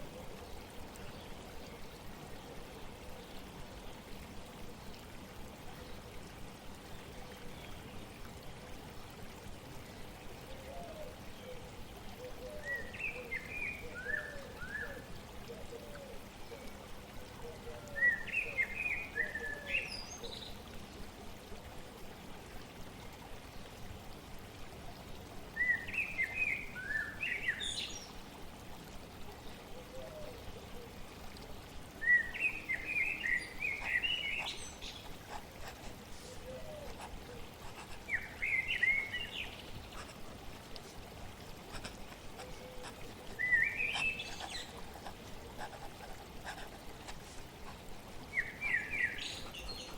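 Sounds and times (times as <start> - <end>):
flowing stream water: 0.0 - 49.9
songbird chirping: 41.8 - 45.1, 48.3 - 49.9.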